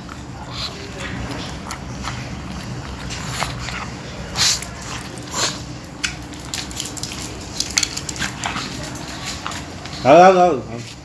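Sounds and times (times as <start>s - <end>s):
puppy chewing and smacking: 0.0s - 10.1s.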